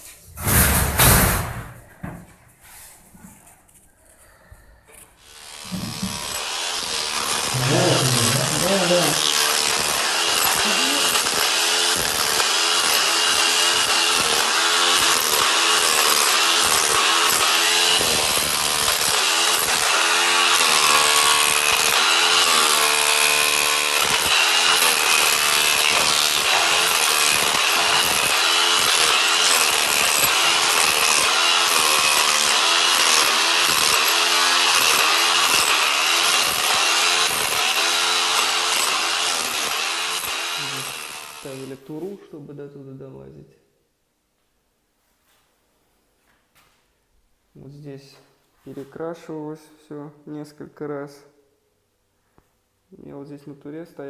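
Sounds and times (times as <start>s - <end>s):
power tool motor running: 5.2s - 41.8s.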